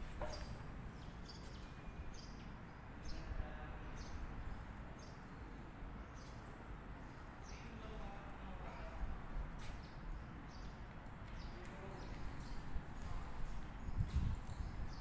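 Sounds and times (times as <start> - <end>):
bird chirping: 0.0 - 3.3.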